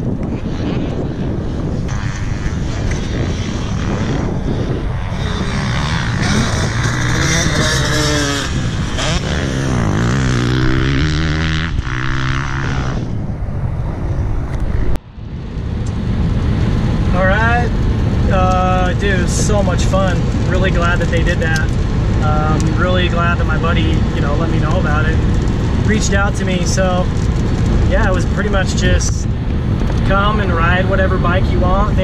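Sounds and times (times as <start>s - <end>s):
dirt bike engine revving: 0.0s - 13.4s.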